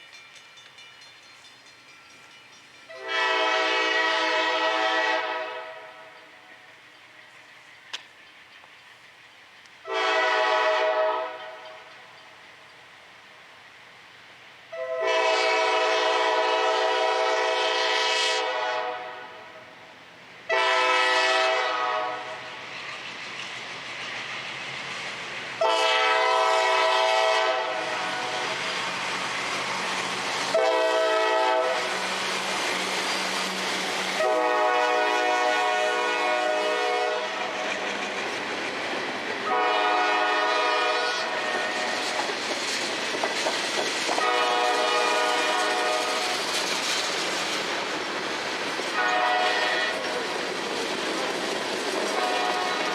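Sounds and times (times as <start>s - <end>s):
rumble of moving train: 0.0s - 52.9s
locomotive air horn blasts: 2.9s - 6.2s, 9.8s - 11.7s, 14.7s - 19.6s, 20.5s - 22.5s, 25.6s - 28.6s, 30.5s - 32.1s, 34.2s - 37.6s, 39.4s - 42.1s, 44.2s - 46.3s, 49.0s - 50.1s, 52.2s - 52.9s.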